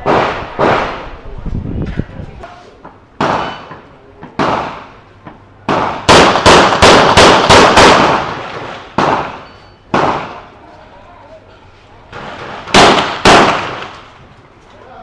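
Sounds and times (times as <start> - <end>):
gunshots with echo: 0.0 - 1.1, 3.2 - 3.7, 4.4 - 5.0, 5.7 - 10.5, 12.2 - 14.0.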